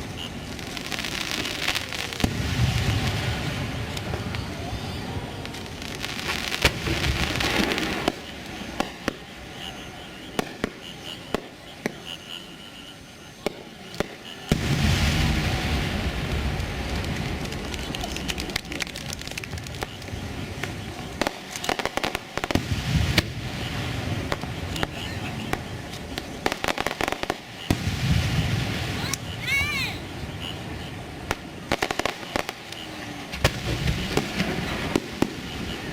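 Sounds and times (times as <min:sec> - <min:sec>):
fireworks bangs: 0:00.0 - 0:35.9
big firework boom with rumble: 0:01.5 - 0:08.2, 0:14.5 - 0:21.3, 0:22.4 - 0:26.7, 0:27.6 - 0:29.0.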